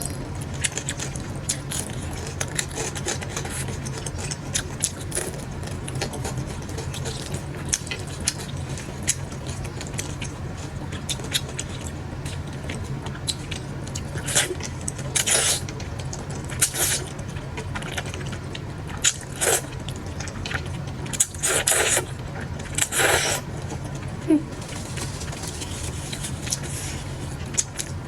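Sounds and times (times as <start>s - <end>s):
steady low hum: 0.0s - 28.0s
person chewing: 11.0s - 28.0s
slurping: 21.2s - 23.5s.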